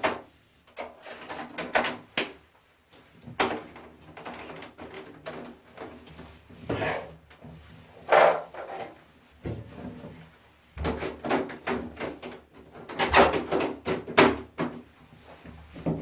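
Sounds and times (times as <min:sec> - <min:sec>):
plastic parts knocking and clacking: 0:10.8 - 0:14.8.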